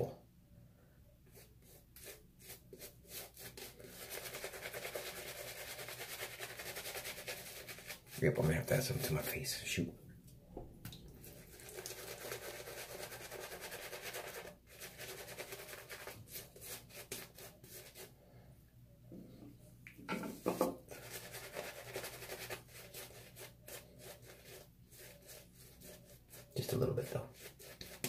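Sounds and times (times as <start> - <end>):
shaving brush scrubbing stubble: 1.3 - 9.4, 11.2 - 18.1, 20.9 - 28.0.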